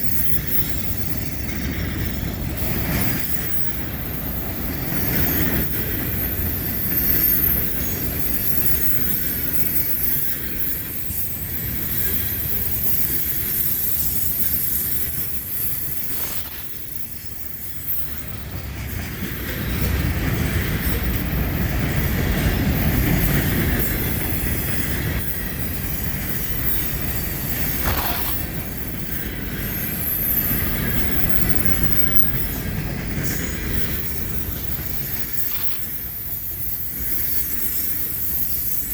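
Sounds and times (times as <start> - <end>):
steel wheels rumbling on rails: 0.0 - 38.9
high-pitched wheel squeals: 2.6 - 10.2.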